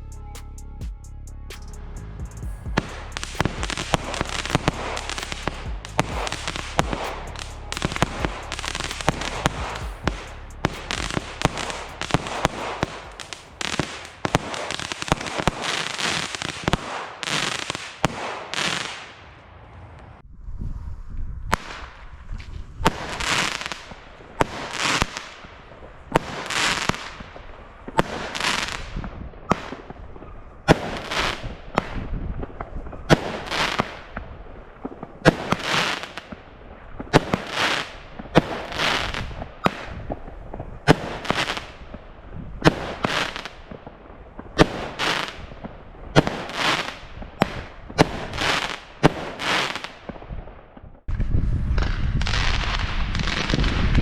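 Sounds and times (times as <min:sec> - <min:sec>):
firework short hiss: 0:01.5 - 0:19.1
firework launch pops: 0:02.8 - 0:19.2, 0:40.8 - 0:42.0, 0:42.6 - 0:54.0.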